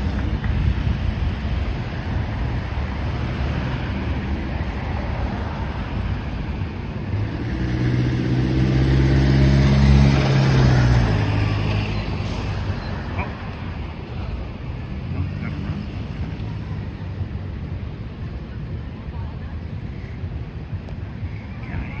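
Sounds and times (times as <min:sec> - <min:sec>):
fire engine diesel engine: 0:00.0 - 0:22.0
street traffic rumble: 0:00.0 - 0:22.0.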